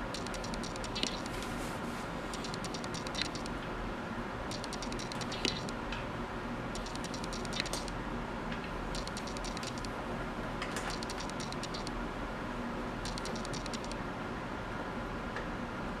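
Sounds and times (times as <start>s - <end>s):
rapid clicking of hand tool: 0.0s - 1.4s, 2.3s - 3.5s, 4.5s - 5.8s, 6.8s - 7.9s, 9.0s - 9.9s, 10.8s - 11.9s, 13.1s - 14.0s.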